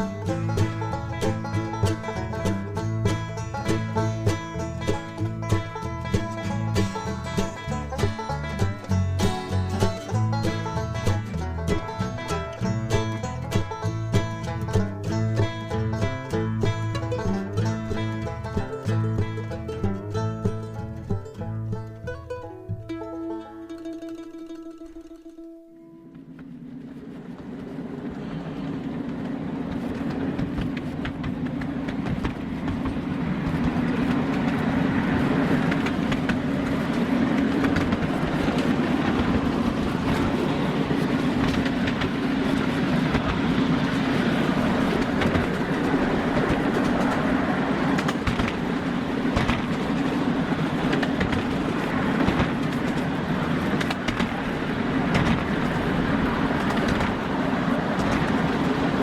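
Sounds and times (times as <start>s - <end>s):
train rumbling along rails: 0.0s - 25.4s, 26.0s - 59.0s
wheels clicking over rail joints: 0.0s - 59.0s.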